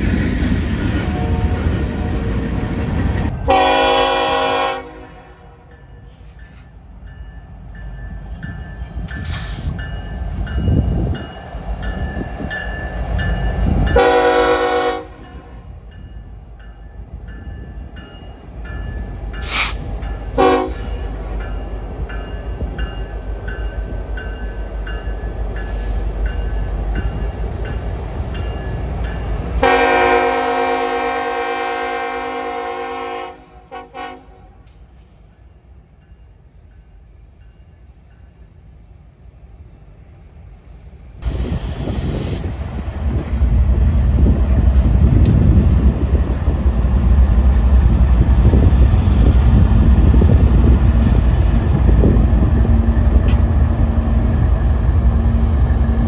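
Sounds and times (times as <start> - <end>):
diesel locomotive rumbling: 0.0 - 56.0
train air horn blasts: 3.4 - 6.3, 13.9 - 15.7, 19.4 - 20.9, 29.6 - 35.0.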